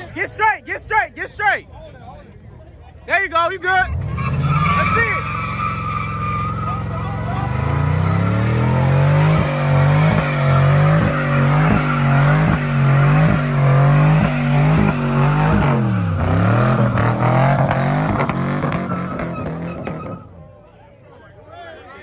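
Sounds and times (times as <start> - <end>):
car engine revving high: 3.9 - 20.2.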